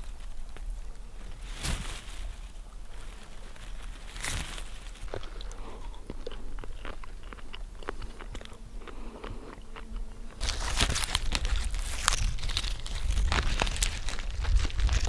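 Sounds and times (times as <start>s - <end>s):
rustling and handling noise: 0.0s - 5.6s, 10.4s - 15.0s
man chewing: 3.3s - 15.0s.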